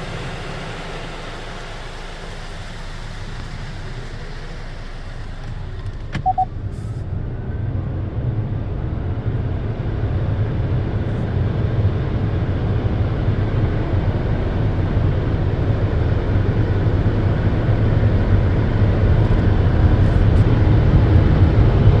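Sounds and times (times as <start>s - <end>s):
car wash machinery rumbling: 0.0s - 22.0s
short high tone: 6.2s - 6.5s.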